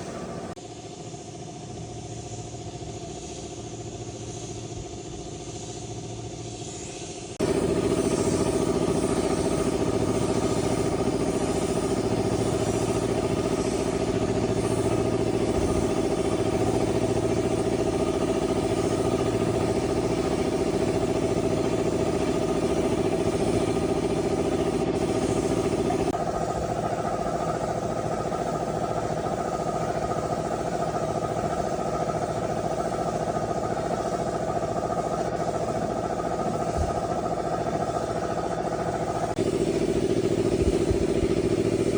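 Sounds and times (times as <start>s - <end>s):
engine running: 0.0s - 41.9s.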